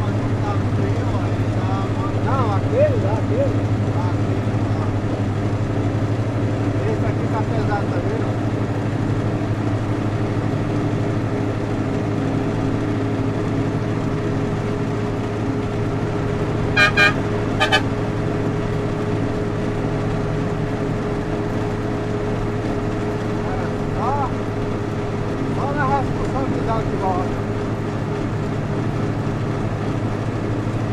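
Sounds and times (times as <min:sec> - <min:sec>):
vehicle driving drone: 0:00.0 - 0:30.9
vehicle horn toots: 0:16.7 - 0:18.0.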